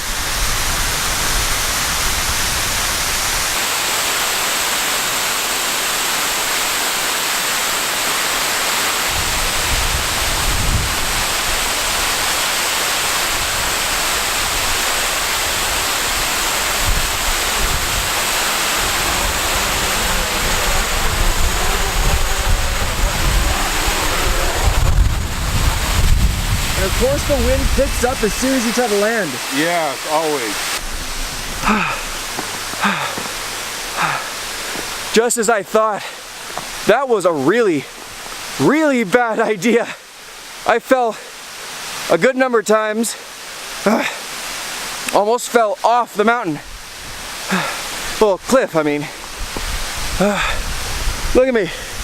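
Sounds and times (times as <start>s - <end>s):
waterfall rushing: 0.0s - 52.0s
wind buffeting microphone: 9.1s - 12.3s, 13.3s - 28.6s, 49.2s - 52.0s.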